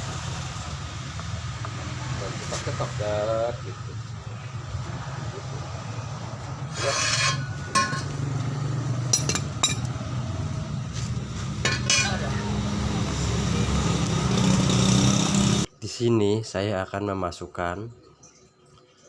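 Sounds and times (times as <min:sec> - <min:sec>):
metal tools clinking: 0:06.8 - 0:08.1, 0:09.2 - 0:09.9, 0:11.6 - 0:12.2.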